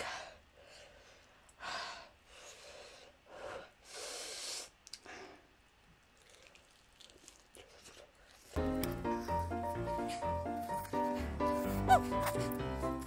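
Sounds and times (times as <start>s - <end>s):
woman breathing heavily: 0.0s - 5.6s, 9.7s - 13.0s.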